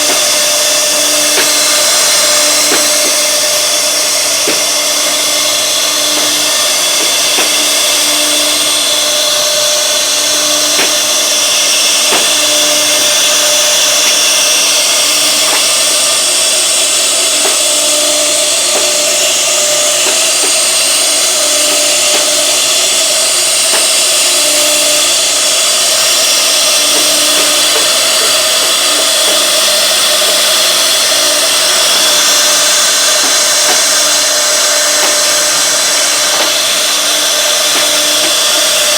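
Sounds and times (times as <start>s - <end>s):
wood router cutting wood: 0.0s - 38.9s.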